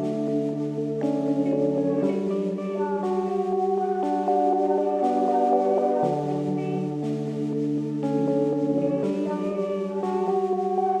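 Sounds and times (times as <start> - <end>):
ambient synthesizer pad music: 0.0 - 11.0.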